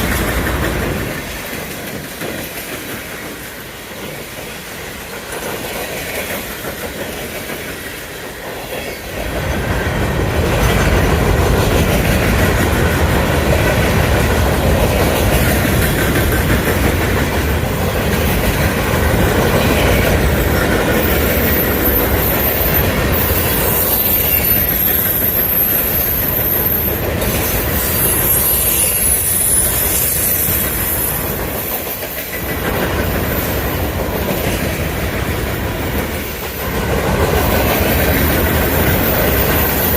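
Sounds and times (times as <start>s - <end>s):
freight train cars rolling: 0.0s - 39.9s
wheels clacking over rail joints: 0.0s - 39.9s
high wheel squeal: 20.2s - 31.6s, 38.5s - 39.9s.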